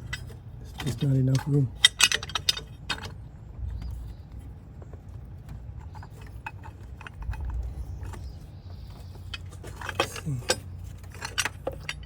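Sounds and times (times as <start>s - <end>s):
tools clicking against metal: 0.0s - 3.1s
low steady rumble: 0.0s - 12.0s.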